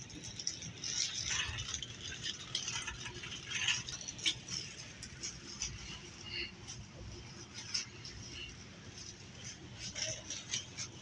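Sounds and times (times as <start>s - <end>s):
store background noise: 0.9s - 11.0s.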